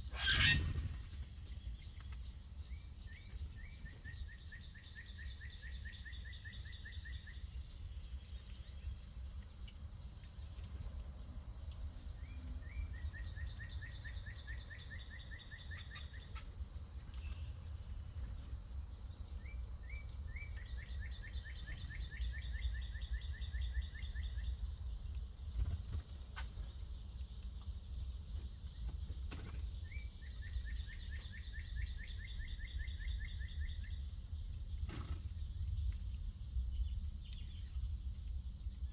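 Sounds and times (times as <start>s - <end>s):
birds chirping: 0.0s - 5.8s
songbird trilling: 0.1s - 0.9s.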